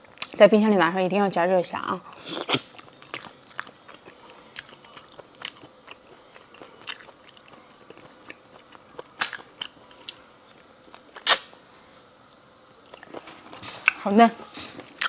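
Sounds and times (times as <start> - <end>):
person chewing: 2.1 - 15.0.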